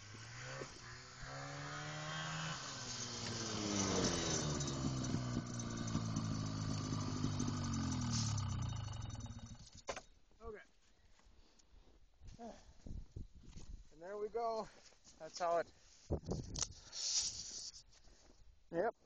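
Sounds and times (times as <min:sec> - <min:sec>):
snowmobile engine under load: 0:00.0 - 0:10.0.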